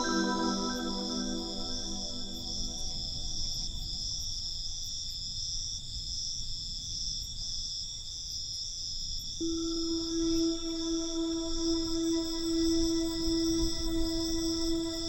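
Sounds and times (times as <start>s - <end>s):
crickets chirping: 0.0s - 15.0s
low synthesizer tone: 9.4s - 15.0s.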